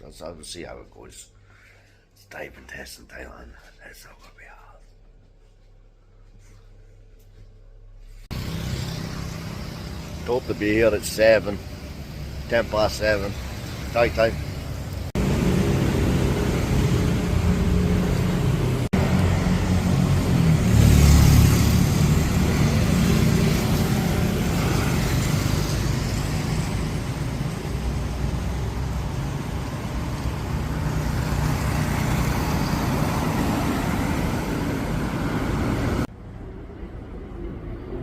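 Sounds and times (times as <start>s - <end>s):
engine running: 7.3s - 38.0s
passing vehicles: 8.2s - 38.0s.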